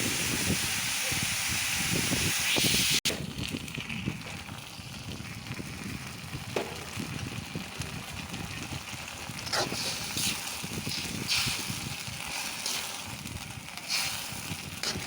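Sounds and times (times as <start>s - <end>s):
loud sizzling hiss: 0.0s - 3.0s, 7.6s - 15.0s
food crackling in pan: 3.0s - 15.0s.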